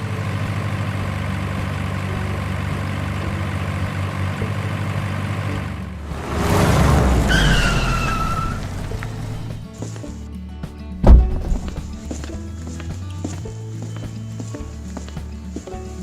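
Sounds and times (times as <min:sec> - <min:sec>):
truck engine running: 0:00.0 - 0:10.0, 0:11.0 - 0:12.8
whistle-like falling tone: 0:07.2 - 0:09.0.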